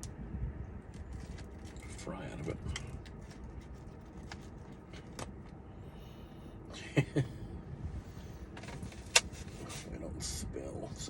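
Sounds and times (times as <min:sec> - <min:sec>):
car cabin rumble: 0:00.0 - 0:06.2, 0:07.0 - 0:10.9
food handling clicks and rustles: 0:00.9 - 0:05.6, 0:08.5 - 0:09.9.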